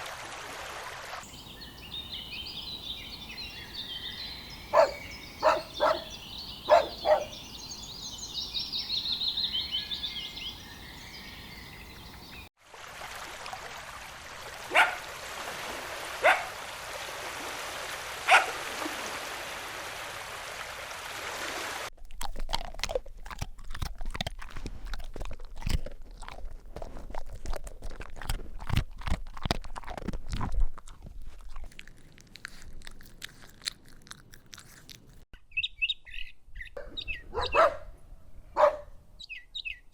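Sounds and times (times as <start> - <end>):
birds singing: 1.2 - 12.5, 35.4 - 37.8, 38.6 - 39.9
dog barking: 4.7 - 7.4, 14.7 - 15.1, 16.2 - 16.6, 18.3 - 18.6, 36.8 - 38.0, 38.6 - 39.0
crunching and rustling: 22.0 - 35.2.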